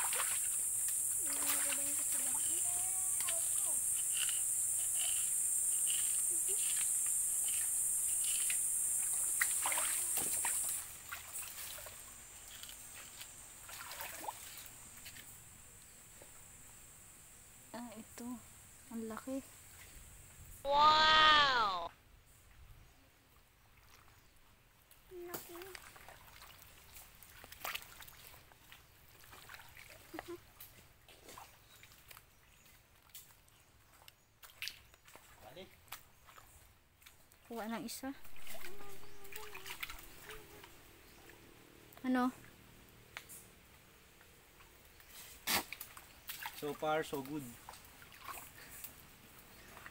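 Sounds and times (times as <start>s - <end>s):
shallow water sloshing and splashing: 0.0s - 4.1s, 8.2s - 15.1s, 25.4s - 33.1s, 38.2s - 41.4s, 44.5s - 49.9s
steady high hiss: 0.0s - 22.5s
digging clicks and knocks in sand: 1.6s - 8.7s, 45.0s - 47.5s.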